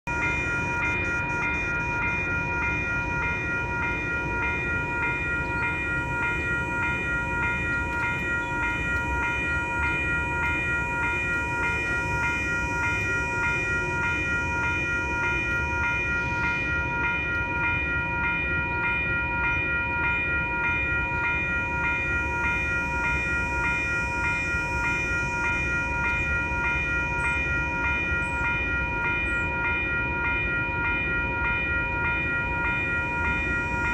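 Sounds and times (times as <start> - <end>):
level crossing bells ringing: 0.1 - 33.9.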